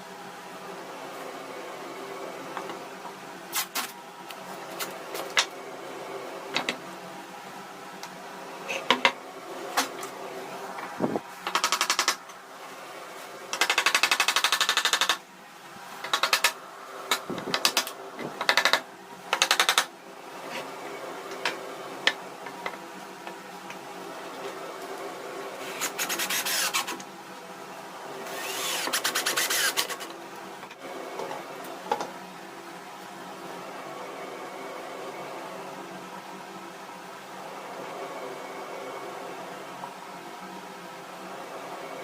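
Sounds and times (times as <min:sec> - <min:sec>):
fast even mechanical rattling: 0:11.4 - 0:12.2, 0:13.5 - 0:15.2
sharp mechanical clicks and knocks: 0:11.4 - 0:12.4, 0:13.5 - 0:15.2, 0:16.0 - 0:19.9.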